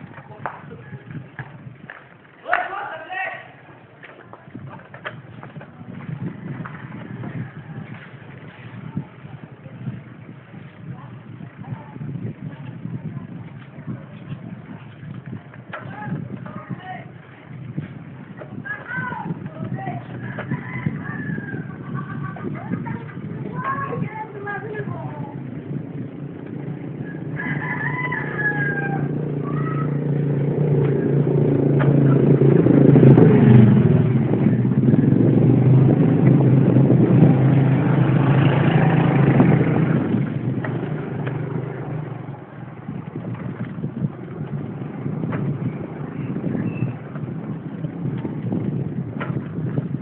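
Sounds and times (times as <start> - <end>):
rooster crowing: 20.3 - 21.8, 27.0 - 29.2
vehicle engine passing by: 25.7 - 49.8.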